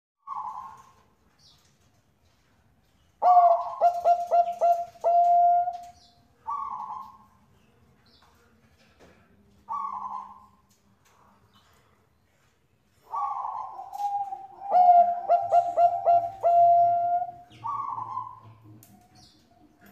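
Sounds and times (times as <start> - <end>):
dove cooing: 0.2 - 1.0, 3.2 - 7.2, 9.7 - 10.5, 13.0 - 19.9.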